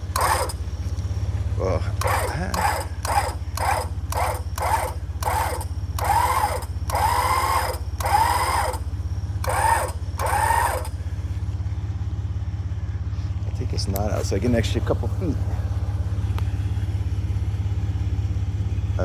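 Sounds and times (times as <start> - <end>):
electric winch motor whining: 0.0 - 11.8
vehicle engine idling: 0.0 - 19.0.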